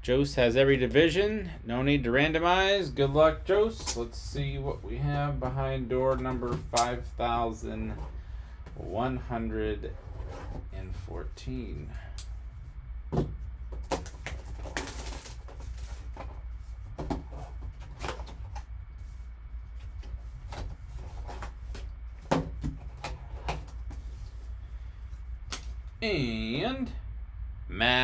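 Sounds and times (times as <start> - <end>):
steady low hum: 0.0 - 28.0
cardboard taps and rustles: 13.1 - 18.7, 19.8 - 24.4.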